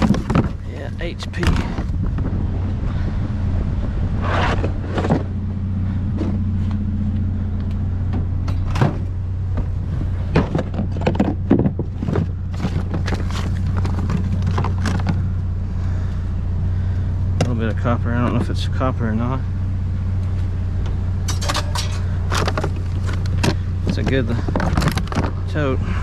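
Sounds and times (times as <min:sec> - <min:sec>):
junk knocking and clattering: 0:00.0 - 0:03.0, 0:04.6 - 0:05.5, 0:08.0 - 0:15.4, 0:20.2 - 0:25.6
steady low drone: 0:00.0 - 0:26.0.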